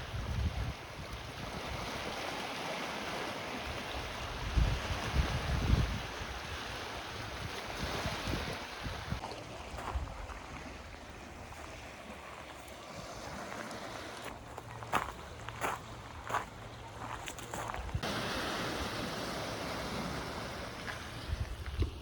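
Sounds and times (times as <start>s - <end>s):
wind buffeting microphone: 0.0s - 2.1s, 3.7s - 10.6s, 14.5s - 18.2s, 21.0s - 22.0s.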